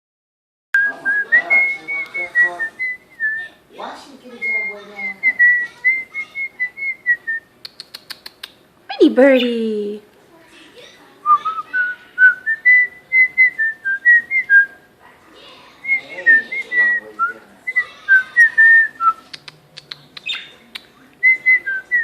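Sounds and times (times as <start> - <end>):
faint scratchy bird chatter: 17.8 - 20.9.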